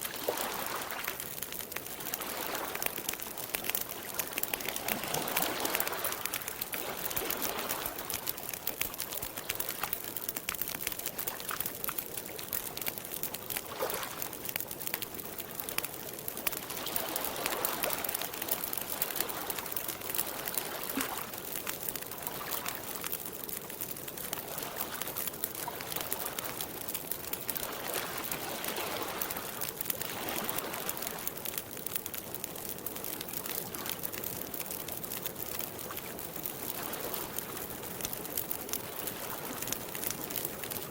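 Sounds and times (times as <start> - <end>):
lake water lapping at shore: 0.0 - 10.4, 13.5 - 14.3, 27.5 - 31.2
campfire crackling: 0.0 - 40.9.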